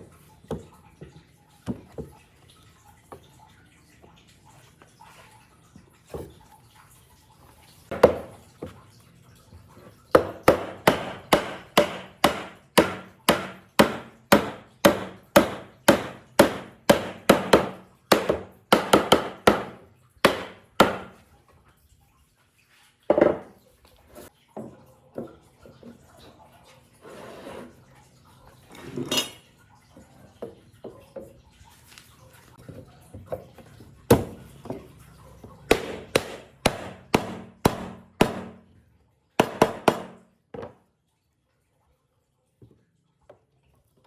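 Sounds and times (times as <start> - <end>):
wood being struck: 10.2 - 21.1.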